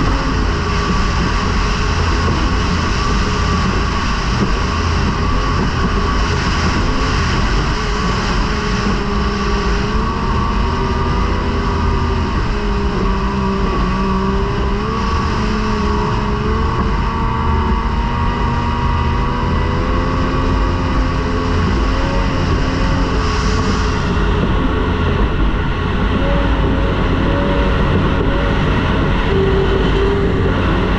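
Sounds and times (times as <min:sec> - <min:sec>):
racing outboard motor: 0:00.0 - 0:30.9
wind and hull rumble: 0:00.0 - 0:30.9.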